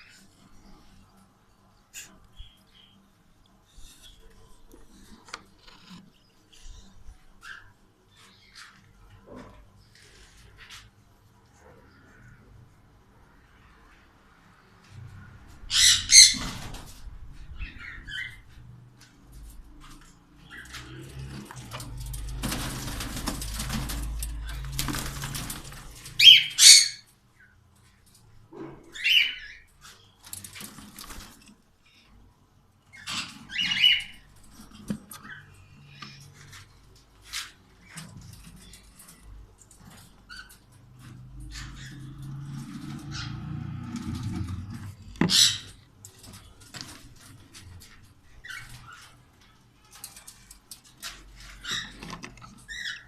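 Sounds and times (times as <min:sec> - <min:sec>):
light clicks and scratching: 0:03.4 - 0:12.4, 0:18.2 - 0:26.2, 0:29.7 - 0:53.0
cockatiels screeching: 0:15.7 - 0:16.6, 0:26.2 - 0:27.1, 0:28.9 - 0:29.7, 0:32.9 - 0:34.2, 0:45.2 - 0:45.8, 0:52.7 - 0:53.0.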